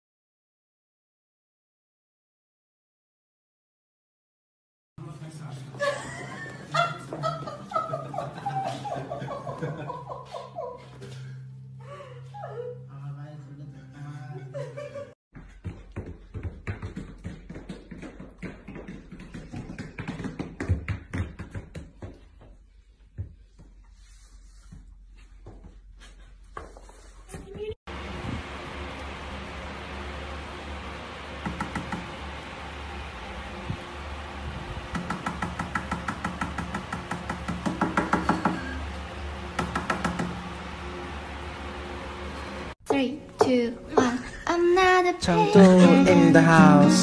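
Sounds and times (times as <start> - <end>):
booted paws tapping on floor: 15.4 - 23.8.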